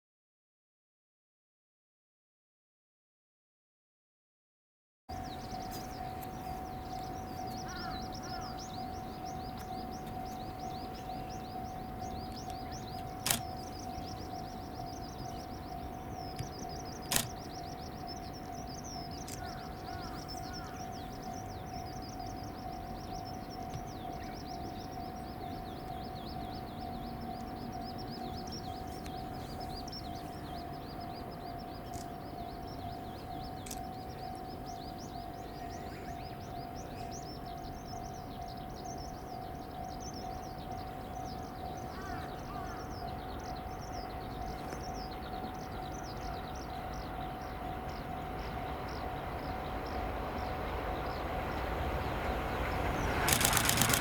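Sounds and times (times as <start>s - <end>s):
small birds chirping: 5.1s - 54.0s
sharp clicks: 13.2s - 13.5s, 16.4s - 17.4s, 53.2s - 54.0s.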